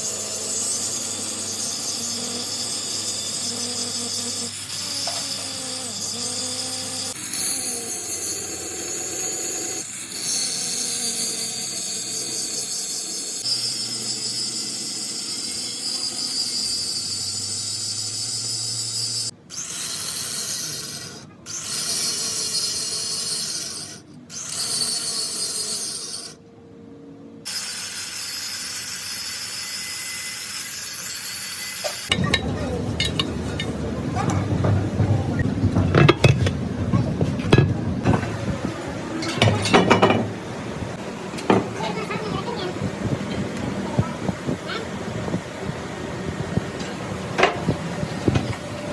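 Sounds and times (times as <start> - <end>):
metal clattering and clinking: 32.1 - 38.3.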